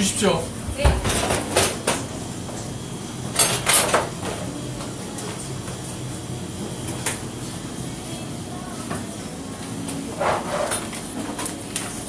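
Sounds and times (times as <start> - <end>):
dishes and utensils clattering: 3.3 - 4.4.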